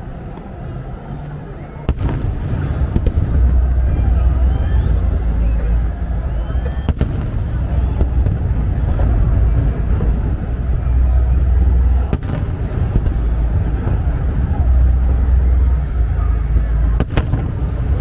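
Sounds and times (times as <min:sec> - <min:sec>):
fireworks rumbling bursts: 0:01.8 - 0:18.0
sharp firework cracks: 0:01.9 - 0:03.4, 0:06.9 - 0:08.4, 0:17.0 - 0:17.8.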